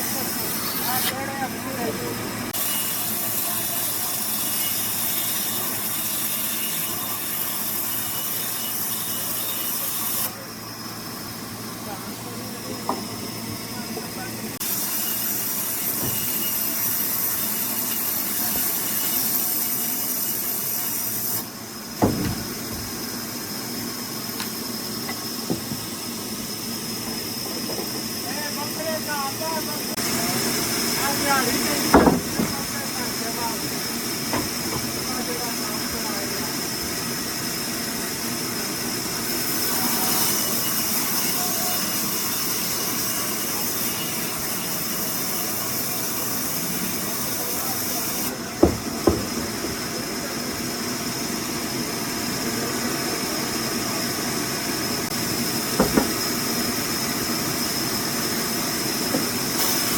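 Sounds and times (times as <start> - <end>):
sawmill machinery running: 0.0 - 59.9
sharp knock: 31.9 - 32.6, 55.8 - 56.2.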